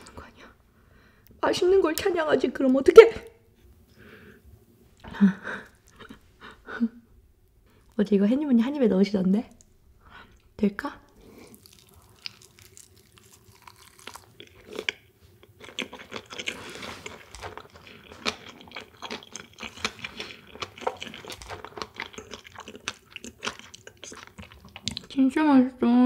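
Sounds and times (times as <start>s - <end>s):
crunchy chewing with wet mouth sounds: 11.1s - 25.2s.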